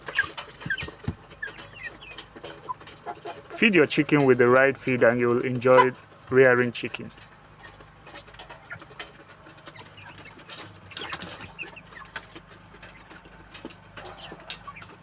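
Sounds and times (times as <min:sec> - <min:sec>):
chickens clucking and cheeping: 0:00.0 - 0:15.0.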